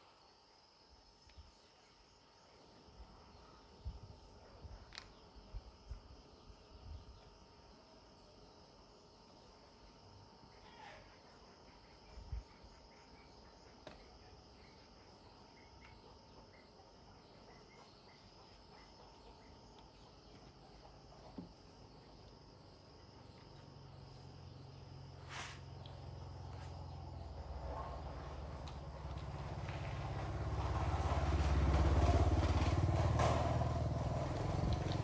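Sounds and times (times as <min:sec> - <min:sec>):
insects chirping: 0:00.0 - 0:35.0
low engine rumble: 0:23.2 - 0:35.0.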